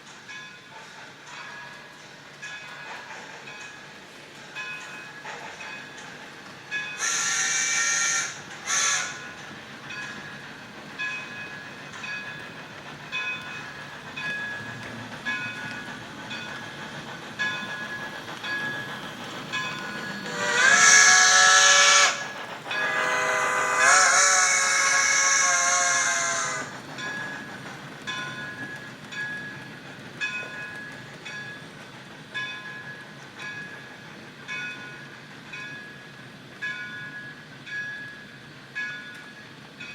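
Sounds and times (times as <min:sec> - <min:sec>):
steam locomotive chuffing: 0:00.0 - 0:39.9
model train whistle blasts: 0:07.0 - 0:09.2, 0:20.2 - 0:26.7.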